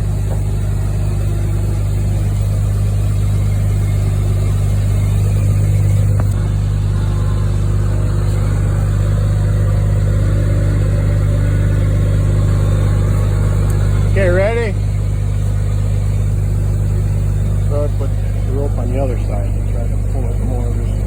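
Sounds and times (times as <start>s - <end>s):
truck engine running: 0.0s - 21.0s
click: 6.1s - 6.5s, 13.6s - 13.9s.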